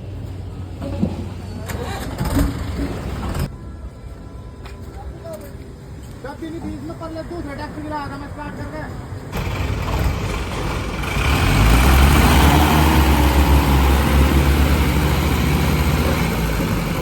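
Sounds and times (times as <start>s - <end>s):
tractor diesel engine revving: 9.3s - 17.0s.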